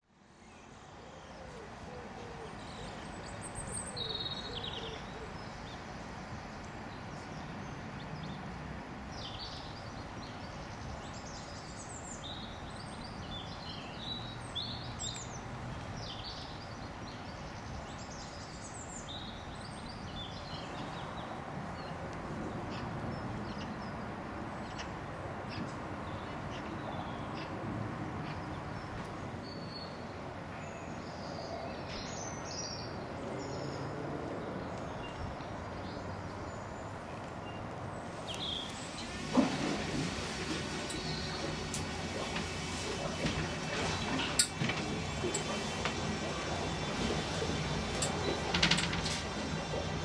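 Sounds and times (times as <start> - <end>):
outdoor background hiss: 0.1 - 22.5, 28.0 - 50.0
birds chirping and singing: 34.9 - 50.0.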